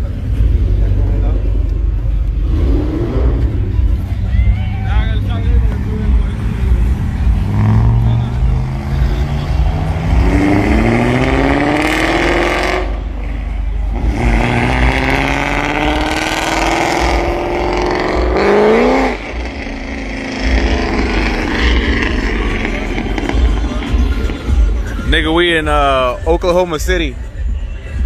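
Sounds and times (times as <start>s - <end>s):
car engine accelerating: 0.0s - 25.4s.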